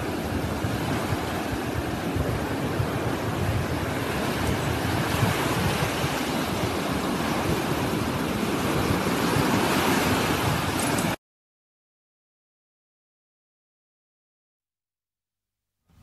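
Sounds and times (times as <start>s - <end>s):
waves washing onto sandy beach: 0.0s - 11.2s.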